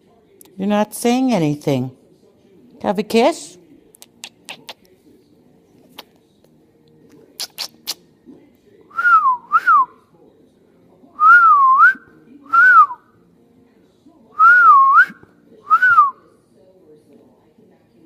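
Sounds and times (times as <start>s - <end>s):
person whistling phrase: 8.9s - 9.9s, 11.2s - 13.0s, 14.4s - 16.1s.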